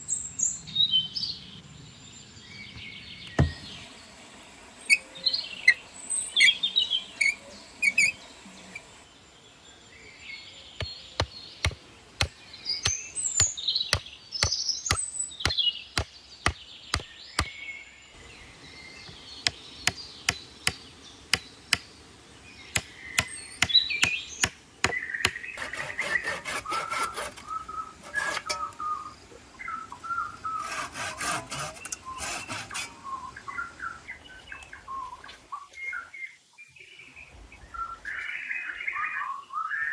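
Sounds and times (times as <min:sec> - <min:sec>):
birds chirping: 0:00.0 - 0:39.9
sharp knocks: 0:03.4 - 0:03.7
rubbing or scraping strokes: 0:07.2 - 0:08.9, 0:25.6 - 0:28.8, 0:30.4 - 0:33.2.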